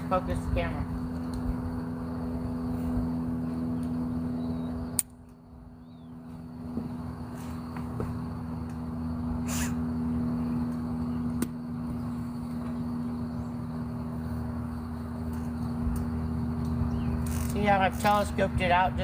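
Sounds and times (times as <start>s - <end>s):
low mechanical hum: 0.0s - 19.0s
sharp click: 4.9s - 5.4s.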